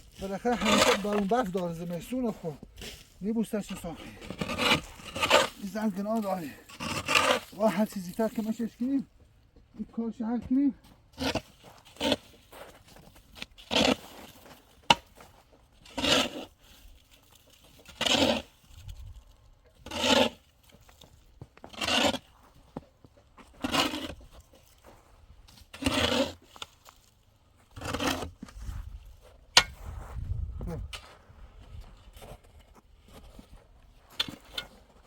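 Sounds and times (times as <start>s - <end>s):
scraping strokes: 0.0s - 8.9s.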